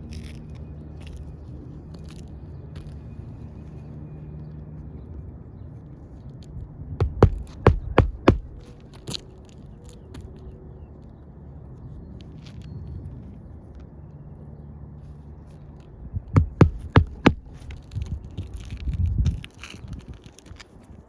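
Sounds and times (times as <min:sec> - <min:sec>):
sharp knocks: 0:07.0 - 0:08.6, 0:16.4 - 0:17.6
dull thumps: 0:07.0 - 0:08.8, 0:16.4 - 0:17.8
low rumbling handling noise: 0:07.0 - 0:10.3, 0:15.5 - 0:20.2.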